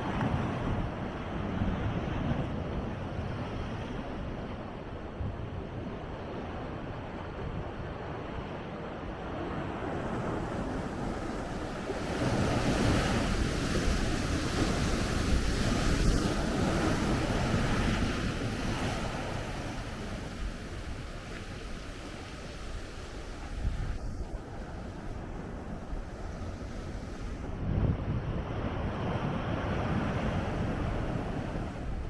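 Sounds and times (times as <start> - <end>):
wind buffeting microphone: 0.0 - 32.0
ocean wave breaking: 9.5 - 27.7, 28.7 - 32.0.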